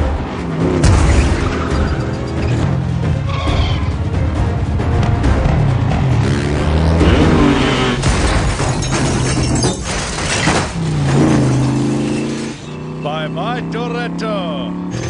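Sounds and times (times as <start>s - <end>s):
car engines revving: 0.0s - 9.7s, 10.4s - 15.0s
road and wind noise: 0.0s - 15.0s.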